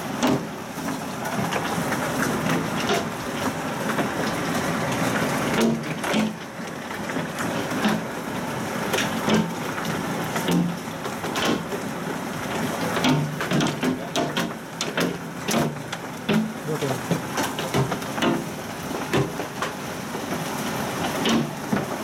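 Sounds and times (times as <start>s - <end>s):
heavy rain hiss: 0.0s - 22.0s
hailstones striking hard surfaces: 8.8s - 22.0s.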